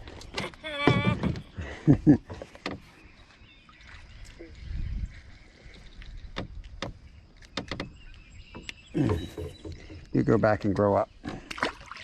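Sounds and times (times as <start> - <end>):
sharp clicks and knocks: 6.3 - 10.9.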